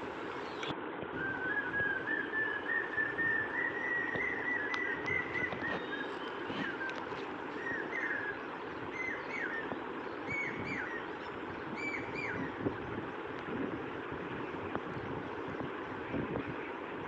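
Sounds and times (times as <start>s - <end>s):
steady background noise: 0.0s - 17.0s
bird chirping: 1.6s - 12.6s.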